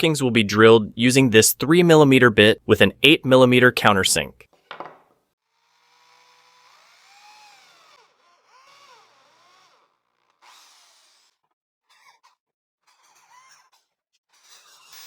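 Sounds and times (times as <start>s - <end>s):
faint electric drill boring into wood: 5.4s - 11.5s.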